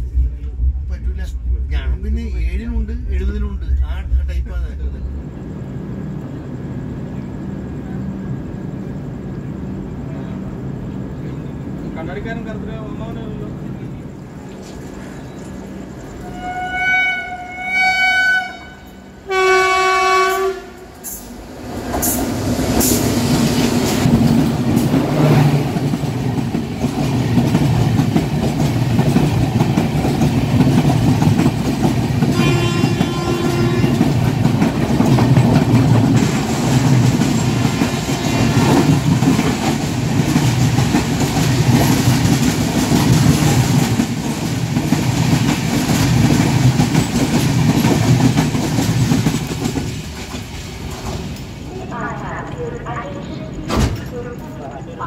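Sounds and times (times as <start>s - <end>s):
train wheels rumbling: 0.0s - 55.0s
train horn blasts: 16.2s - 21.2s, 32.3s - 34.2s, 38.1s - 38.9s
clickety-clack over rail joints: 21.0s - 51.5s.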